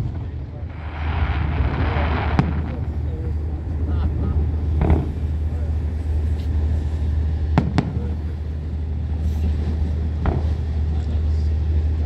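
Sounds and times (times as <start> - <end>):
steady low rumble: 0.0 - 12.0
fireworks bangs: 0.7 - 3.4.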